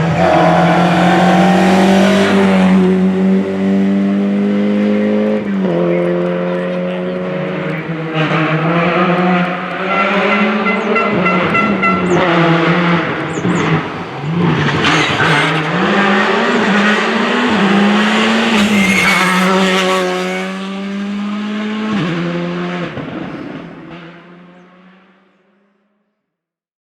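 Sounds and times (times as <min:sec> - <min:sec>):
rally car engine revving: 0:00.0 - 0:25.7
tyre squeal: 0:18.0 - 0:20.0.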